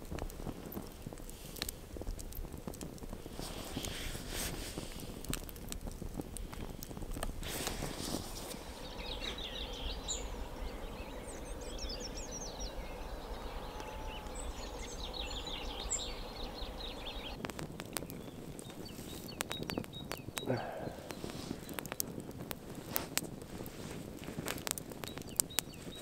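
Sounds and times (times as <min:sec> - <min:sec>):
low steady rumble: 0:06.9 - 0:17.4
songbird chirping: 0:07.4 - 0:21.9.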